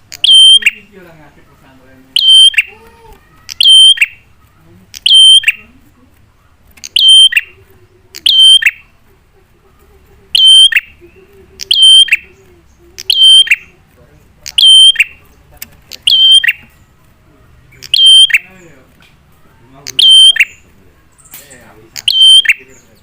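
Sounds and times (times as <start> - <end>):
bird calling sharply: 0.1 - 0.9, 2.1 - 2.8, 3.4 - 4.3, 4.9 - 5.7, 6.8 - 7.6, 8.2 - 8.9, 10.4 - 11.0, 11.6 - 12.4, 13.0 - 13.7, 16.0 - 16.8, 17.8 - 18.6, 19.9 - 20.7, 22.0 - 22.8.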